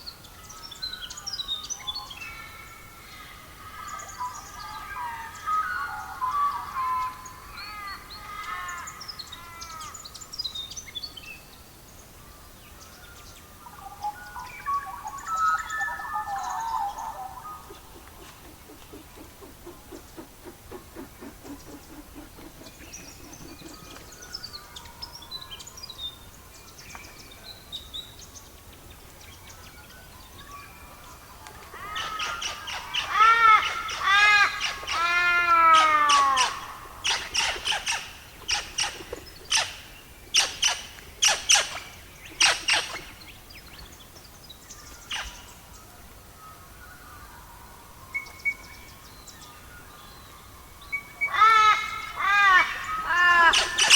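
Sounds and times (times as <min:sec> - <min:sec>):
soft steady hiss: 0:00.0 - 0:53.9
bird calling: 0:15.1 - 0:25.0, 0:51.2 - 0:53.9.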